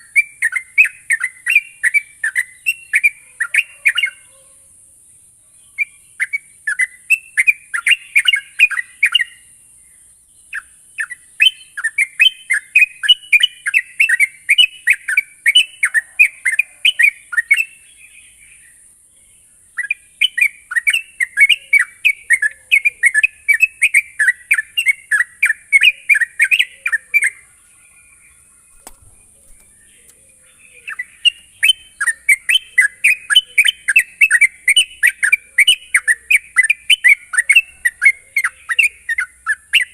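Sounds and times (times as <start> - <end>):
bird singing bubbly chirps: 0.0 - 4.2, 19.7 - 39.9.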